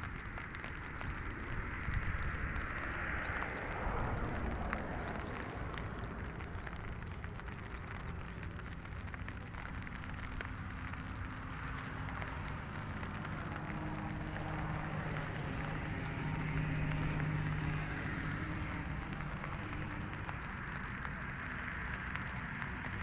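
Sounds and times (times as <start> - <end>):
light rain drops ticking: 0.0 - 23.0.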